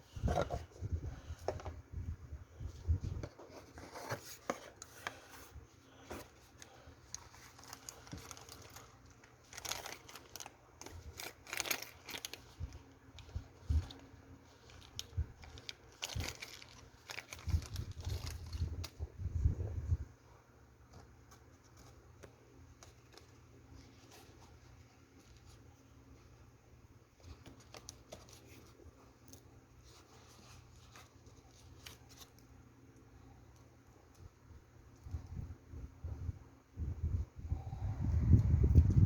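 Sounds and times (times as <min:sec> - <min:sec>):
packaging crinkling and tearing: 0:06.6 - 0:19.1.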